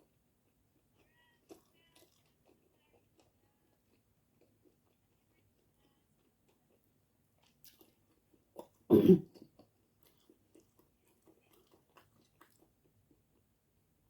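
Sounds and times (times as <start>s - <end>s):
person chewing food: 0.0s - 13.6s
person coughing: 8.9s - 9.3s.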